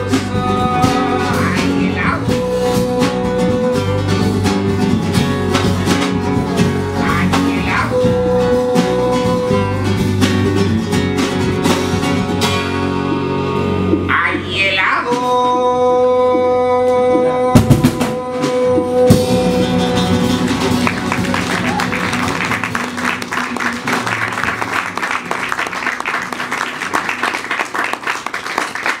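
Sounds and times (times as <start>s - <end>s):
live band playing instrumental: 0.0s - 15.6s, 16.3s - 29.0s
lead guitar: 0.0s - 15.7s, 16.5s - 28.5s
audience applauding: 20.5s - 29.0s.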